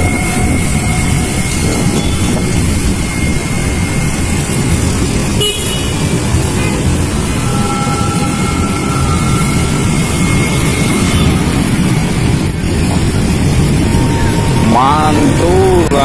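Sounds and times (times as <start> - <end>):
vehicle horn: 0.0 - 12.8
road traffic rumble: 0.0 - 16.0
wind: 0.0 - 16.0.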